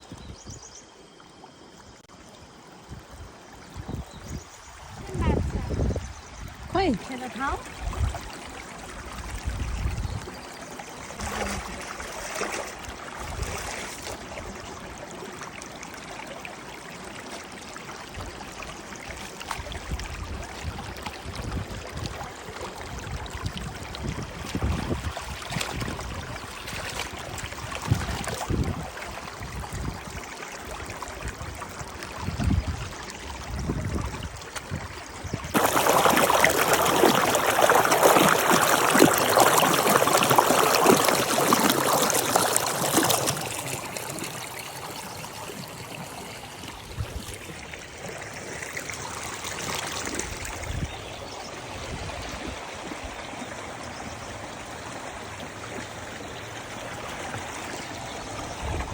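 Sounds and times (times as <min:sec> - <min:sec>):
stream water running: 0:00.0 - 0:58.9.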